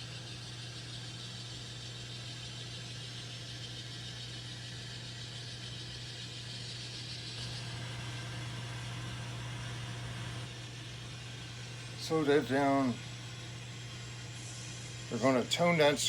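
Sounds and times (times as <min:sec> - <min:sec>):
model locomotive diesel engine sound: 0:00.0 - 0:16.0.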